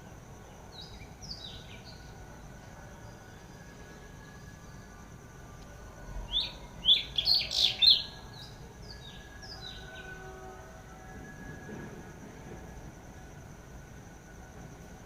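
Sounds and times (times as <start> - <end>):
high insect drone: 0.0 - 15.0
bird chirping: 6.3 - 10.0.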